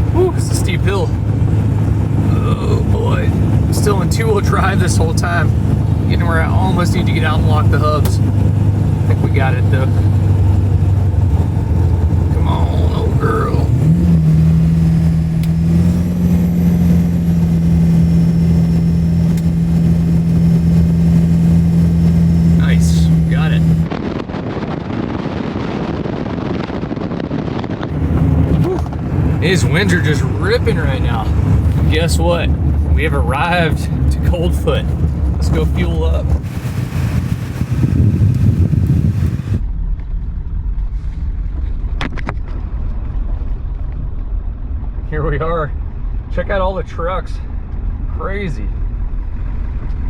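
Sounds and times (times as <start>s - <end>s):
diesel truck engine pulling uphill: 0.0s - 23.9s, 27.9s - 39.7s
wind noise: 0.0s - 50.0s.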